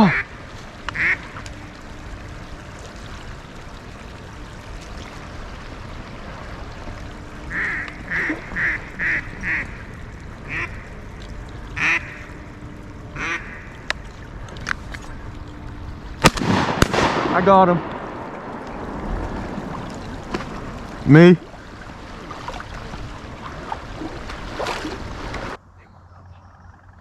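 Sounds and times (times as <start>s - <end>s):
duck quacking: 0.9s - 1.2s, 7.5s - 9.7s, 10.5s - 10.8s, 11.8s - 12.3s, 13.2s - 13.7s.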